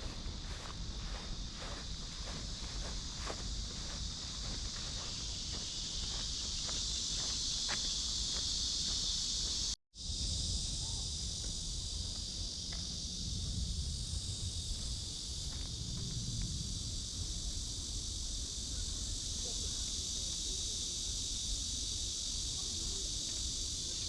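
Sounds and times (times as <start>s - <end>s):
footsteps on a path: 0.0s - 9.8s
cicadas buzzing: 0.0s - 24.0s.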